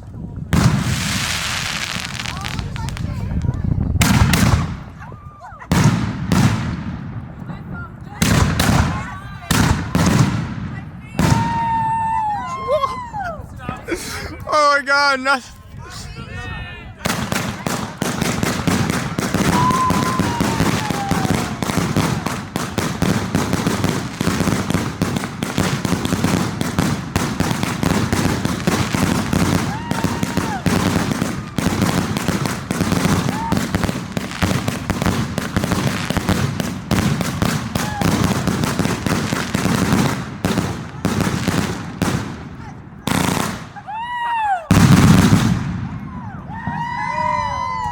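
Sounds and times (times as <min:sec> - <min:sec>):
fireworks bangs and crackling: 0:00.0 - 0:13.8, 0:17.0 - 0:47.9
firework whistle gliding down: 0:19.4 - 0:21.8.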